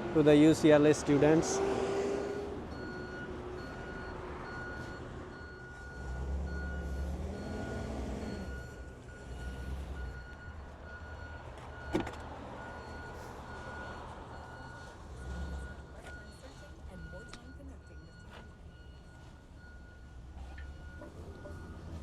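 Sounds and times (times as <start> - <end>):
truck engine idling: 2.6 - 22.0
reverse warning beeper: 12.7 - 22.0.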